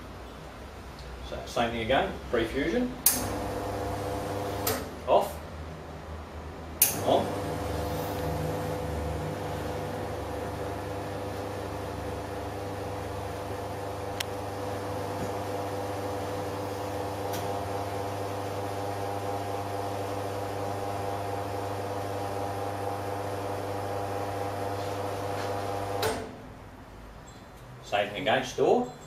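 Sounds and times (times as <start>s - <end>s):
espresso machine pump humming: 3.3s - 4.7s, 7.0s - 26.0s.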